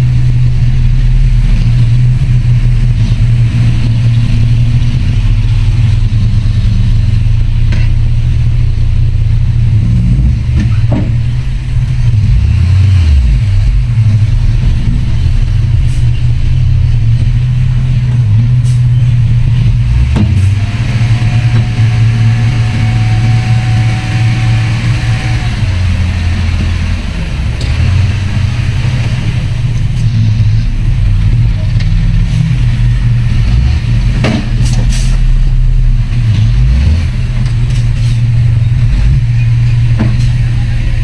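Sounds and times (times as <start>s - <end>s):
heavy diesel engine running: 0.0s - 41.0s.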